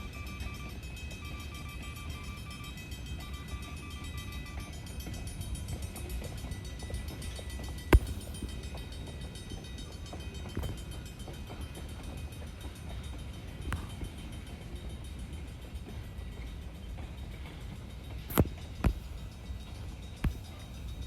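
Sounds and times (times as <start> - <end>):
sharp knocks: 8.0 - 8.6.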